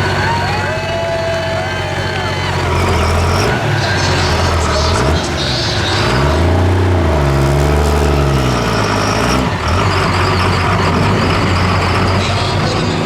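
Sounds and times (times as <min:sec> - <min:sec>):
diesel truck engine running hard: 0:00.0 - 0:13.0.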